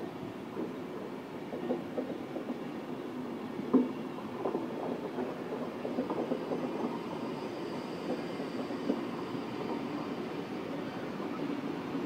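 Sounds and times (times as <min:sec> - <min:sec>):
train coaches rolling on rails: 0:00.0 - 0:12.0.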